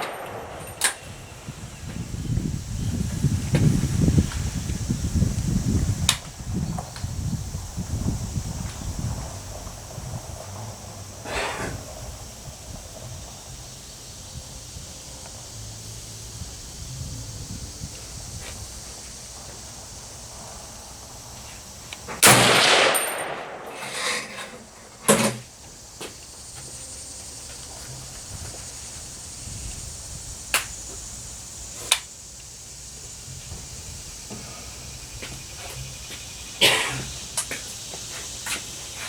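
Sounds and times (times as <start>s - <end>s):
rifle shots with long echo: 0.0s - 1.1s, 22.2s - 23.8s
sharp cracks: 0.0s - 1.2s, 22.1s - 24.1s, 30.5s - 30.8s.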